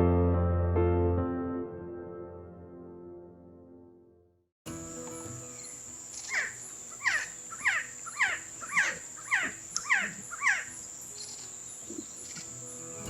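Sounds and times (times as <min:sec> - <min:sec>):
high insect drone: 0:04.7 - 0:13.0
bird calling: 0:05.5 - 0:12.8.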